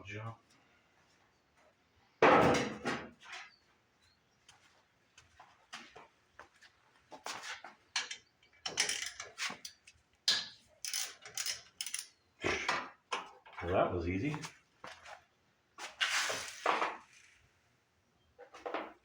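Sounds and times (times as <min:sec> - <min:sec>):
ratchet clicking: 0:10.8 - 0:12.1.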